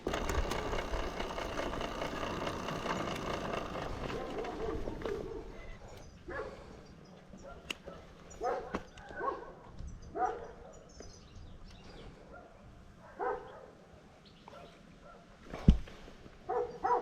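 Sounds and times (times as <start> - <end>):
dog barking: 6.3 - 6.6, 7.4 - 10.9, 12.3 - 13.8, 14.5 - 15.3, 16.5 - 17.0.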